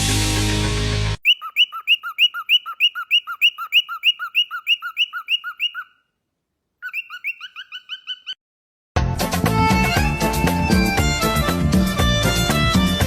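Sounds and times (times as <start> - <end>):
bird chirping high whistles: 1.2 - 6.1, 6.8 - 8.4.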